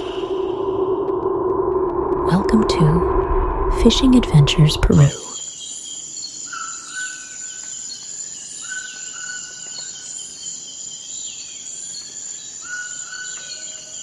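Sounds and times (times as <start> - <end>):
insect drone: 0.0 - 2.3, 5.3 - 14.0.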